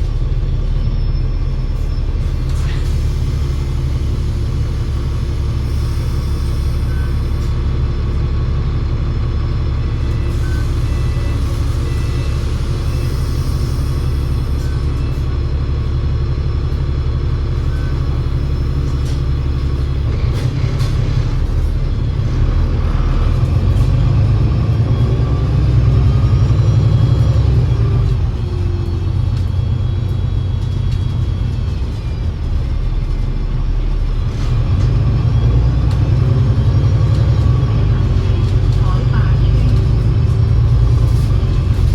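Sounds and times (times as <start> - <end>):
bus engine drone: 0.0 - 41.9
gearbox whine: 8.7 - 41.9.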